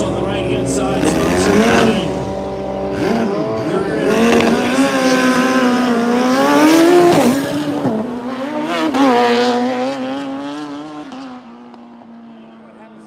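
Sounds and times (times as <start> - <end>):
motorcycle engine at high revs: 0.0 - 13.0.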